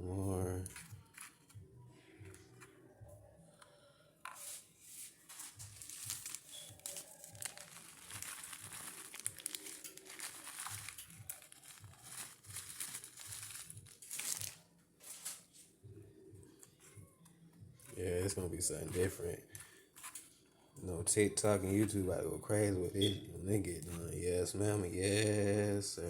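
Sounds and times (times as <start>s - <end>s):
wrapper crinkling: 4.4s - 15.6s.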